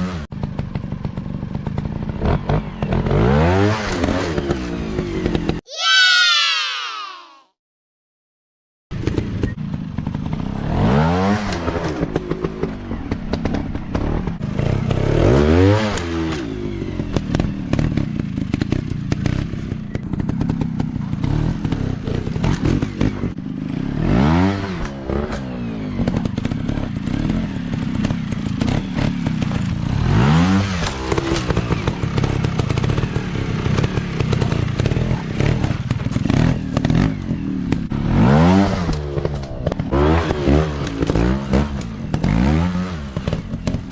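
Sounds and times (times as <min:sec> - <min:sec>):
dirt bike engines revving: 0:10.1 - 0:43.9.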